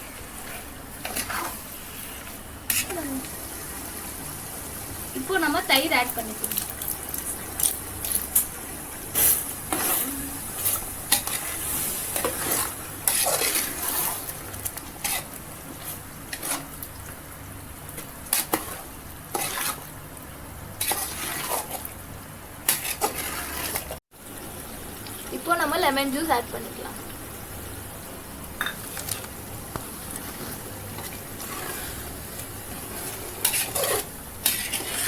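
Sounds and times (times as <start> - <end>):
spoon scraping a pot: 0.0 - 3.2, 9.2 - 14.4, 15.0 - 16.8, 18.3 - 19.9, 20.8 - 21.9, 22.7 - 24.0, 28.6 - 35.0
faint sizzle: 0.0 - 35.0.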